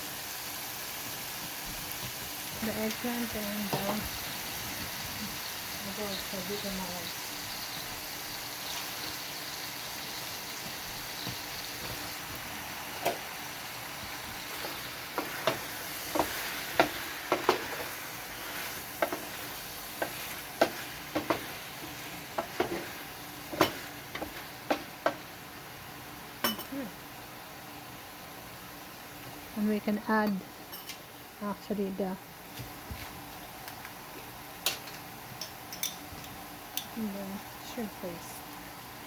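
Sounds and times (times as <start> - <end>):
food sizzling in a pan: 0.0 - 39.0
utensil knocking on pan: 15.1 - 17.9, 19.0 - 19.3, 20.0 - 21.6, 22.3 - 22.9, 23.5 - 25.2.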